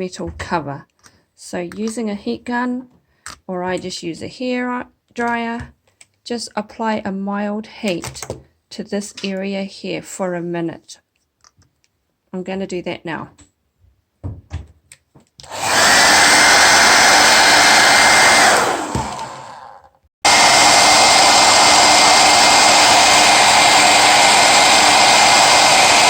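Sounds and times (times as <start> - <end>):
hair dryer blowing: 15.4 - 26.0.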